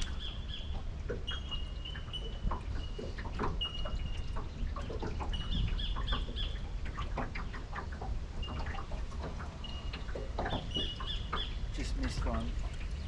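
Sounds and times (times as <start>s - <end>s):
birds chirping and whistling: 0.0s - 6.7s, 9.6s - 13.0s.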